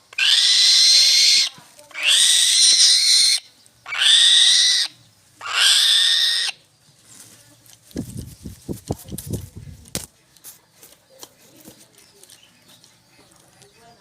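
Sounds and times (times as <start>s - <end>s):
eagle screeching calls: 0.2s - 6.6s.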